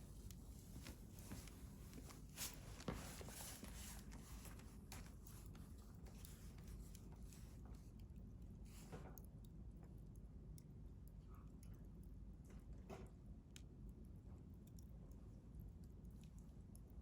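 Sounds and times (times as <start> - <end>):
fire hissing flares: 0.0 - 7.6.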